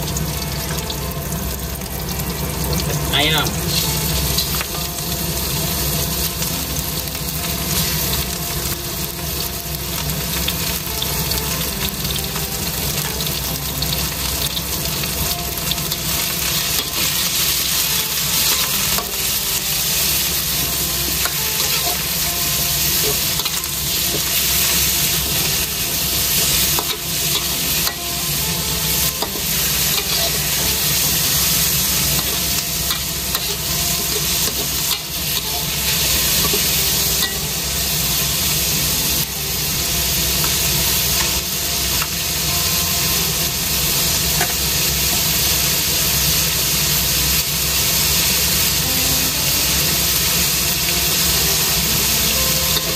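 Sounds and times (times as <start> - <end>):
food sizzling in hot oil: 0.0 - 52.9
metal spatula scraping a pan: 26.3 - 37.5.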